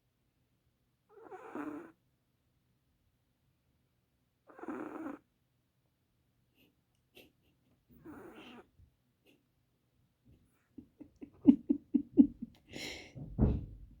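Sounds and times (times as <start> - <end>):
dog breathy huff: 12.7 - 13.2.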